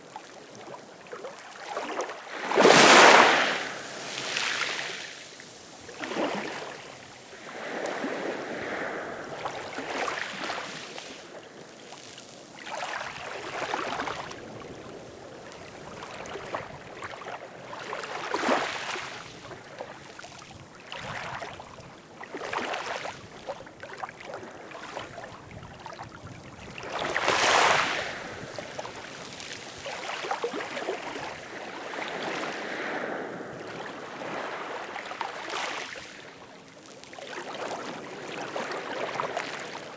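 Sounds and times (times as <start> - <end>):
ocean waves splashing: 2.3 - 11.6, 26.8 - 36.0.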